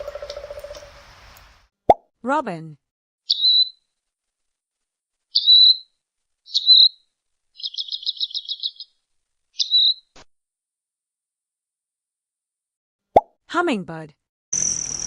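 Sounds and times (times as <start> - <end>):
chattering bird trill: 3.3 - 3.8, 5.3 - 5.9, 6.5 - 7.0, 7.6 - 9.0, 9.6 - 10.1
robin calling: 3.3 - 3.8, 5.3 - 10.2.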